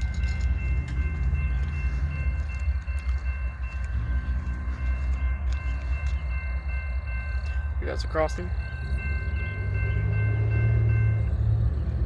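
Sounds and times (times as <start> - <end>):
diesel locomotives rumbling: 0.0 - 12.0.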